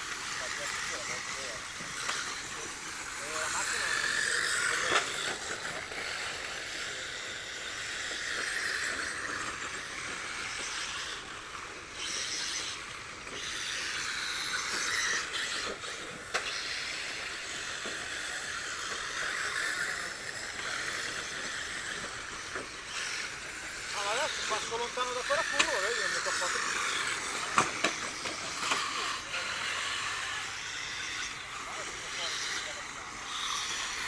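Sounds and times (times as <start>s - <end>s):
rc car motors whirring: 0.0s - 34.0s.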